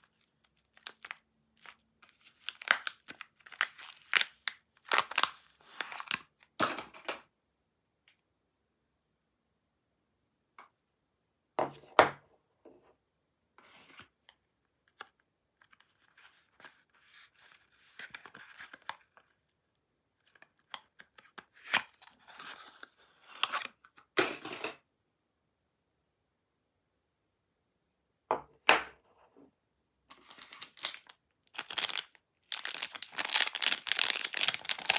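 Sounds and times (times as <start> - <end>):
wrapper tearing and crinkling: 0.0 - 6.3, 30.2 - 34.9.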